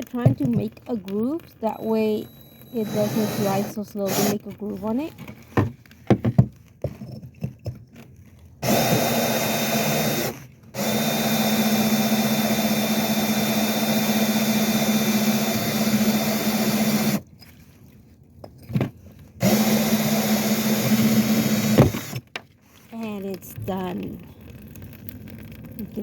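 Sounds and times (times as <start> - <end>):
power drill grinding ceramic: 1.6 - 5.0, 8.6 - 17.2, 19.4 - 22.2.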